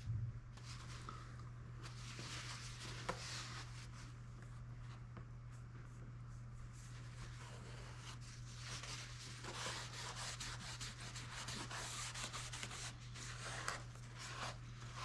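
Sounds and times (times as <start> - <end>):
scratchy rubbing on foam: 6.7 - 15.0.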